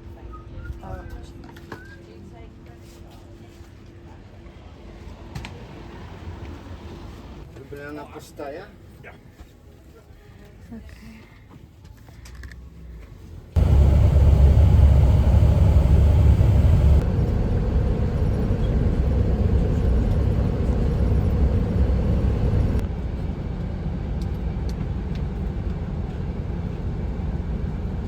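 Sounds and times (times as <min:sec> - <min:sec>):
bus engine rumble and road noise: 0:12.0 - 0:28.0.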